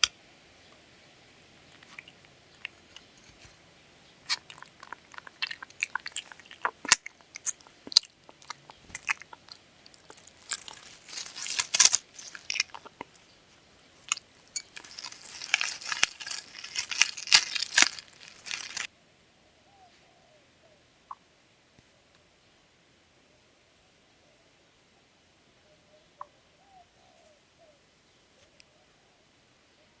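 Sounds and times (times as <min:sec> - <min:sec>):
dog crunching food: 0:04.3 - 0:13.2, 0:14.1 - 0:18.9.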